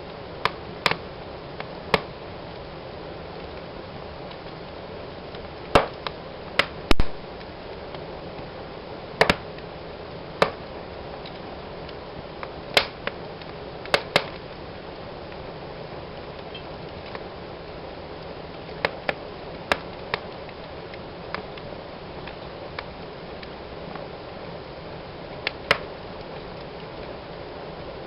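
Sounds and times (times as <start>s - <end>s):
wood fire crackling: 0.0s - 28.0s
sharp pops from fire: 0.4s - 2.7s, 3.3s - 15.4s, 18.2s - 24.1s, 25.4s - 27.2s.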